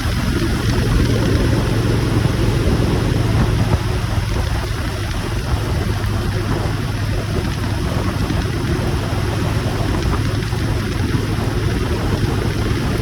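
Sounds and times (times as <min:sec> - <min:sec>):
motorcycle engine running: 0:00.0 - 0:13.0
wind noise: 0:00.0 - 0:13.0.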